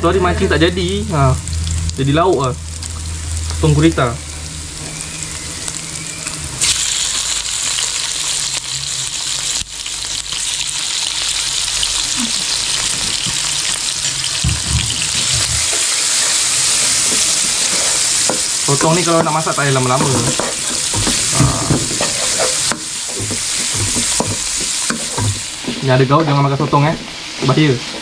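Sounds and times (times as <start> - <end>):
octopus sizzling in hot oil: 0.3 - 28.0
wooden spatula stirring: 17.1 - 28.0.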